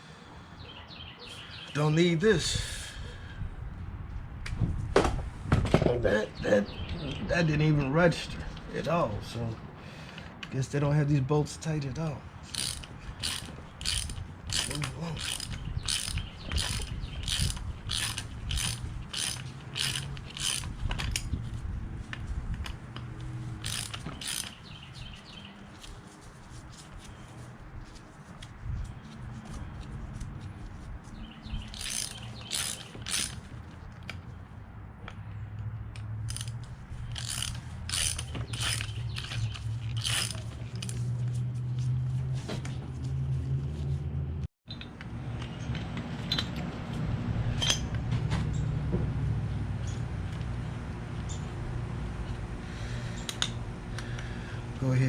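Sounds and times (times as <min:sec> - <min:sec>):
ratchet wrench clicking: 0:12.5 - 0:21.3, 0:23.6 - 0:24.6, 0:31.7 - 0:33.5, 0:36.0 - 0:41.1
steady low hum: 0:46.7 - 0:55.0.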